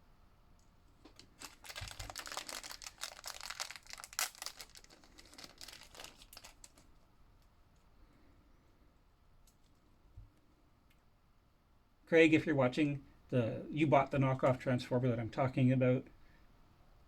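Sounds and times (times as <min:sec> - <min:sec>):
plastic packaging crinkling: 0:01.1 - 0:07.0.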